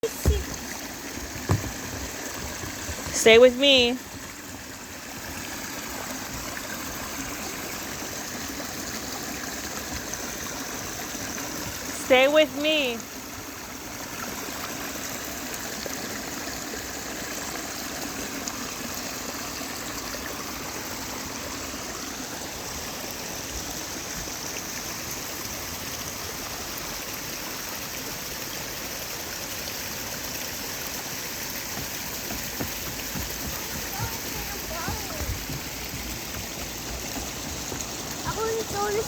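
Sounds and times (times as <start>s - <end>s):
stream flowing: 0.0s - 39.0s.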